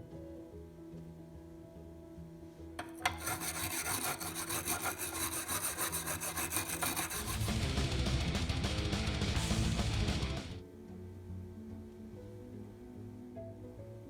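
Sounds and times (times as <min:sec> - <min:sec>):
fast rubbing on hard surface: 0:03.0 - 0:08.0
deeper rubbing sound: 0:03.1 - 0:08.3.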